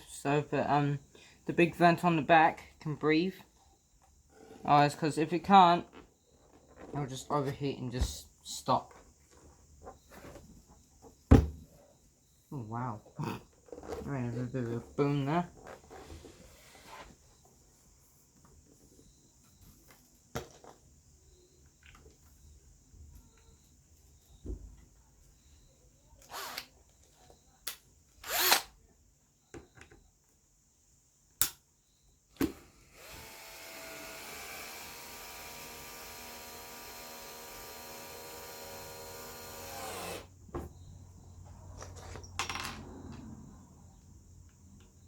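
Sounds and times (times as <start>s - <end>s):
power drill running: 26.3s - 26.7s, 28.2s - 28.7s, 32.4s - 40.3s.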